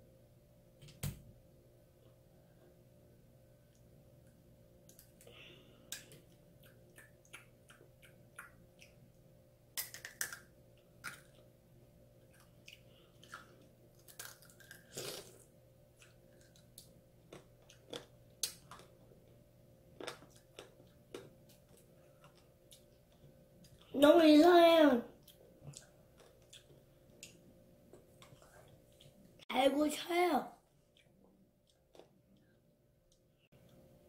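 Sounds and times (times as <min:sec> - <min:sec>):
candy shell crunching: 0:14.0 - 0:15.4.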